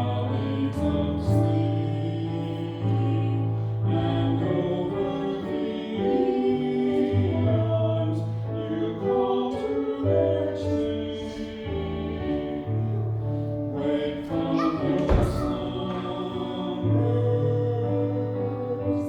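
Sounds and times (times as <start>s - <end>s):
voices singing a hymn: 0.0s - 19.0s
thump: 14.6s - 16.0s.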